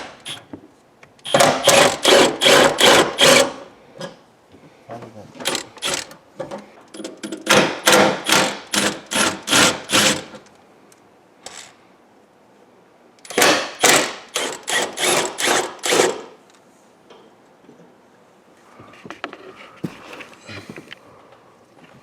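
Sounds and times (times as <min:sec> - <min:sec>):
rhythmic hand tool strokes: 0:01.3 - 0:03.6, 0:08.2 - 0:10.3, 0:13.4 - 0:16.2.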